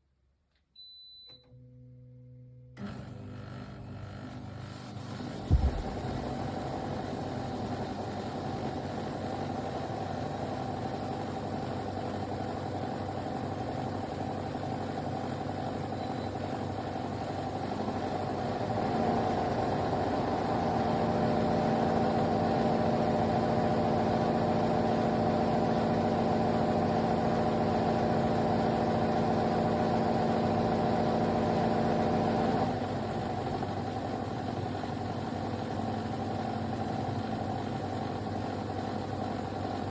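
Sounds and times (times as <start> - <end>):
air conditioner humming: 5.5 - 6.5.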